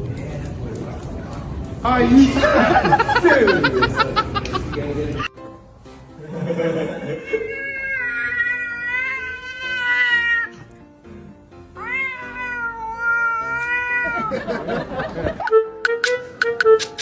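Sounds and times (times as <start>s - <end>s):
music: 0.0s - 17.0s
cat meowing: 7.2s - 10.7s, 11.7s - 14.4s.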